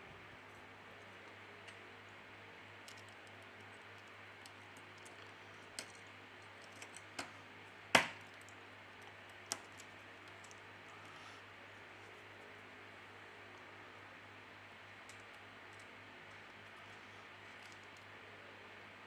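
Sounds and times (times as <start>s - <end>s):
faint steady hiss and hum: 0.0s - 19.0s
small clicks and taps of tools: 2.8s - 7.4s, 8.0s - 11.0s.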